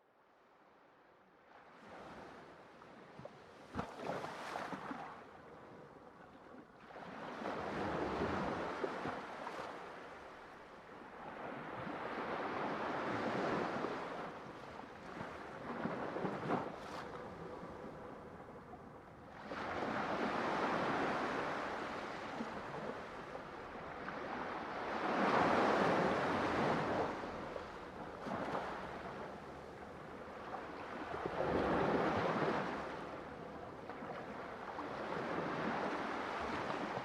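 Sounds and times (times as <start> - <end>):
ocean waves breaking on shore: 19.3 - 37.0.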